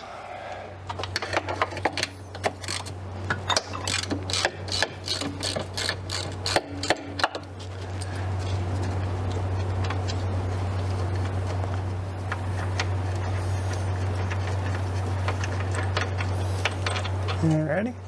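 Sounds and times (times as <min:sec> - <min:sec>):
steady low hum: 0:00.0 - 0:18.0
socket ratchet clicking: 0:03.8 - 0:07.3.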